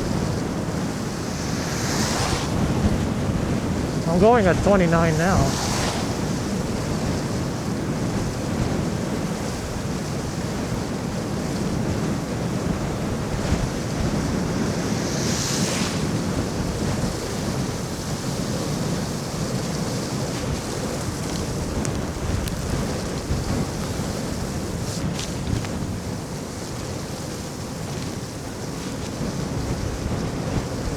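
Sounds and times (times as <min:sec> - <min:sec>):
wind buffeting microphone: 0:00.0 - 0:26.6
brief hiss: 0:01.0 - 0:03.1.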